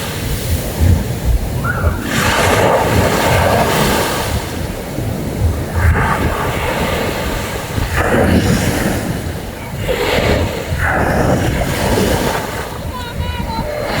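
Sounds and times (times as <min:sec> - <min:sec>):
sea surf washing in: 0:00.0 - 0:14.0
wind buffeting microphone: 0:00.0 - 0:14.0.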